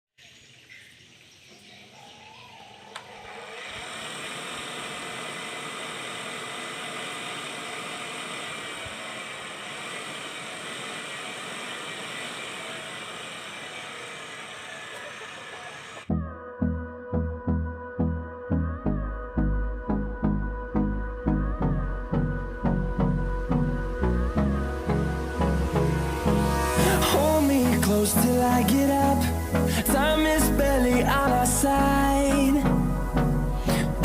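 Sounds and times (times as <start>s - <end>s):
motor-driven machine humming: 2.2s - 16.1s, 21.4s - 34.0s.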